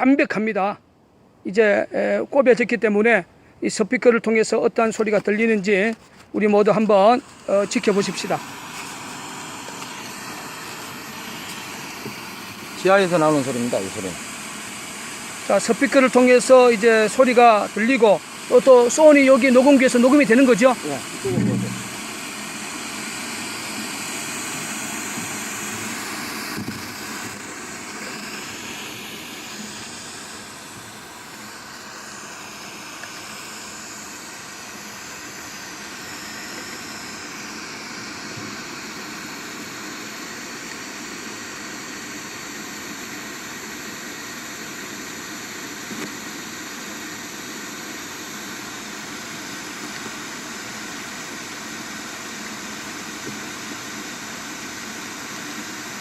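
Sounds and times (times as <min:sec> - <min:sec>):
rushing engine-like noise: 0:17.5 - 0:33.7.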